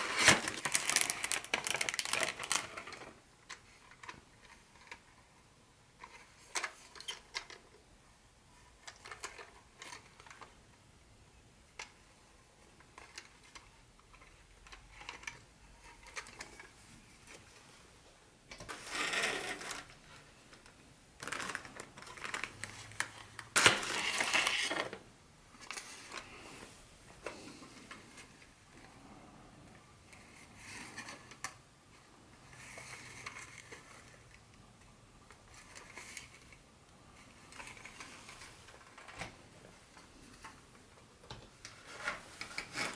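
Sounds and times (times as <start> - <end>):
packaging rustling: 0.0 - 3.2, 18.7 - 25.0.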